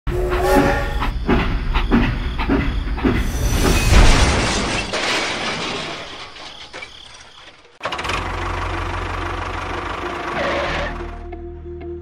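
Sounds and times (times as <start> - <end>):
train horn blast: 0.1 - 1.1
toy train crashing rumble: 3.3 - 9.1.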